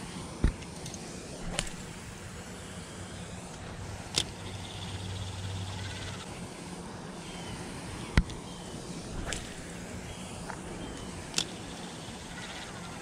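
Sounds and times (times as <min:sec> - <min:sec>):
sharp clicks: 0:00.4 - 0:01.9, 0:03.5 - 0:05.0, 0:10.4 - 0:12.6
fishing reel whirring: 0:00.8 - 0:06.3, 0:07.2 - 0:13.0.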